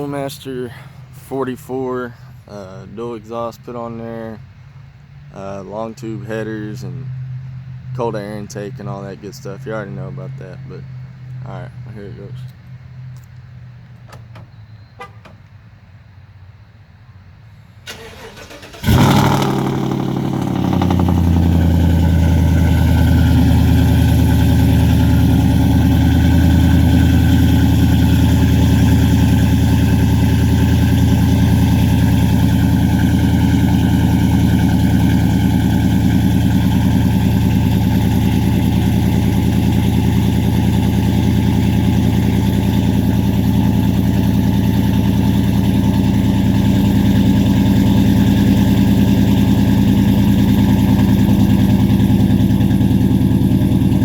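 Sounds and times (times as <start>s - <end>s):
truck engine cranking and idling: 0.0s - 15.7s, 17.6s - 54.0s.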